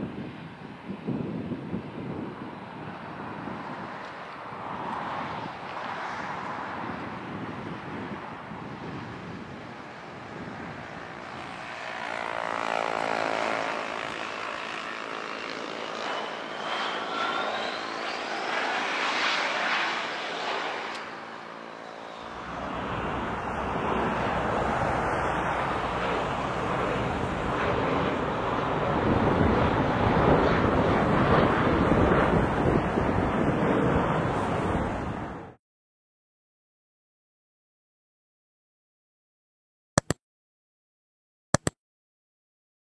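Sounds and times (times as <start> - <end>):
wind on microphone: 0.0 - 13.0, 22.2 - 35.6
airplane flying overhead: 0.0 - 35.6.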